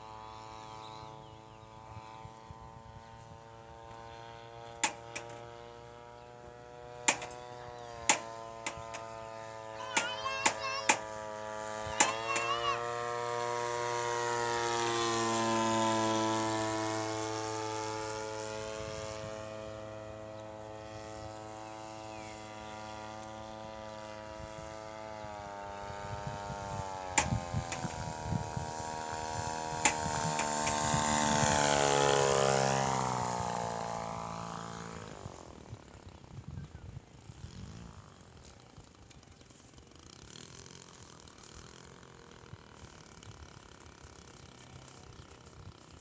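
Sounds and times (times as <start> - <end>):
model airplane engine drone: 0.0 - 46.0
sharp clicks: 4.8 - 5.5, 7.1 - 11.2, 11.8 - 12.8, 27.2 - 28.2, 29.8 - 31.8.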